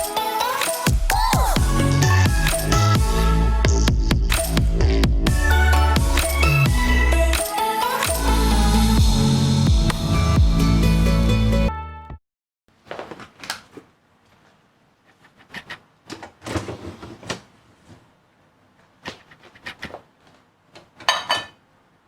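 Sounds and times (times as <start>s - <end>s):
background music: 0.0s - 12.2s
household objects being handled: 12.7s - 18.2s.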